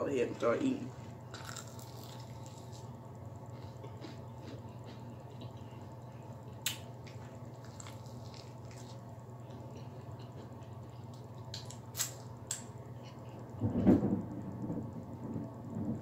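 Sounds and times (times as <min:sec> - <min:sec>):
steady low hum: 0:00.0 - 0:16.0
chewing with wet mouth clicks: 0:03.6 - 0:13.2
lip smacks: 0:06.5 - 0:13.2.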